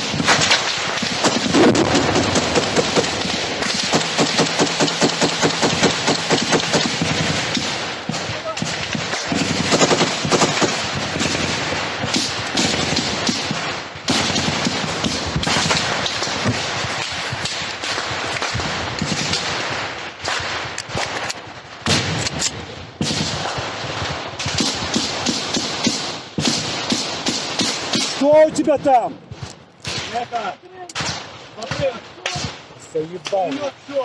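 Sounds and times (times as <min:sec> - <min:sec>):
automatic gunfire bursts: 0:00.0 - 0:21.3.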